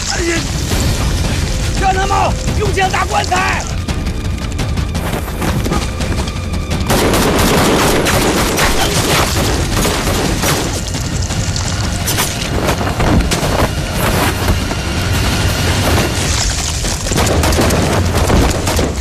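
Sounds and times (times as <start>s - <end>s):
rapid gunfire: 6.9s - 10.8s, 17.0s - 19.0s.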